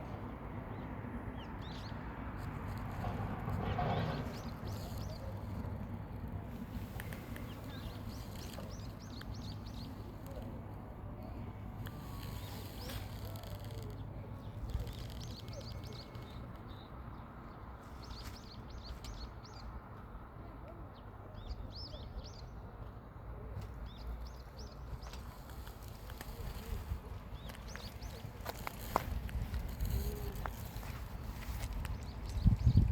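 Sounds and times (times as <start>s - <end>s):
small songbirds chirping: 4.3s - 10.6s, 11.2s - 19.8s, 23.8s - 32.9s.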